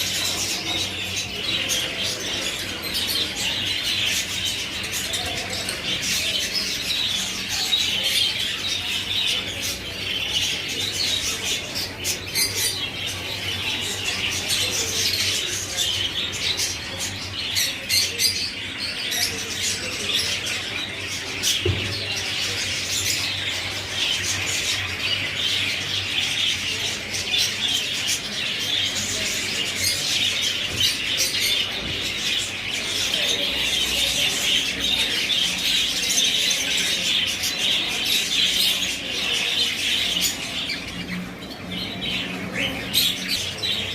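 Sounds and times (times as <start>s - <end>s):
caged birds chirping and squawking: 0.0s - 43.9s.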